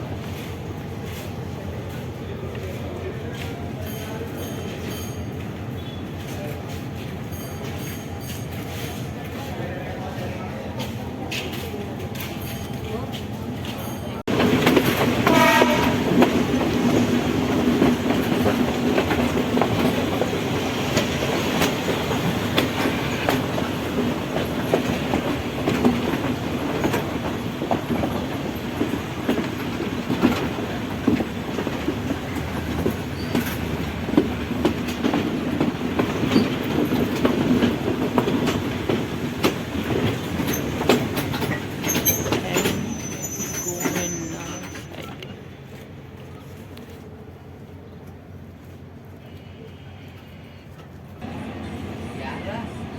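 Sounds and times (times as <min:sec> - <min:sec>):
wheels clickety-clack: 0:00.0 - 0:47.1
train rumbling on rails: 0:00.0 - 0:52.9
brief horn tone: 0:15.3 - 0:16.0.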